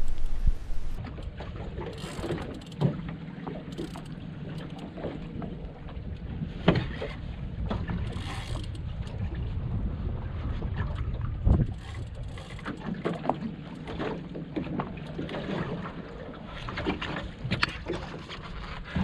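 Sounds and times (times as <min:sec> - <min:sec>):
wind on microphone: 0:00.0 - 0:01.8, 0:05.5 - 0:12.7
water against boat hull: 0:00.0 - 0:19.0.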